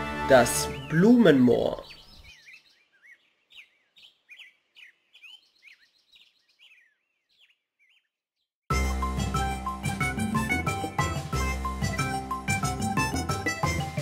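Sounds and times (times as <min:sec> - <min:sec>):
music: 0:00.0 - 0:01.6, 0:08.7 - 0:14.0
faint bird chirping: 0:00.7 - 0:08.5.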